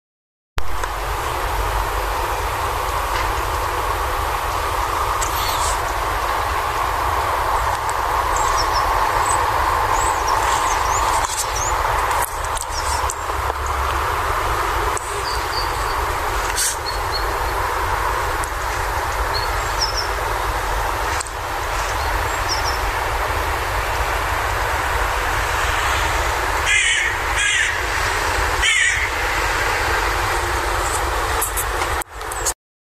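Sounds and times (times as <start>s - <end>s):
outdoor rumble and hiss: 0.6s - 32.6s
loud bird calls: 4.9s - 6.5s, 7.7s - 13.8s, 25.5s - 31.6s.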